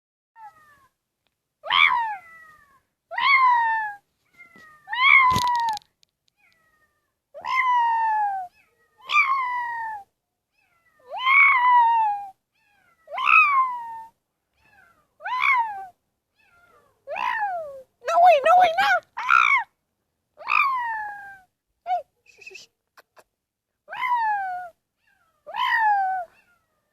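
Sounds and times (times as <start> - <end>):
cat meowing: 1.6 - 5.8, 6.4 - 17.8, 23.9 - 26.8.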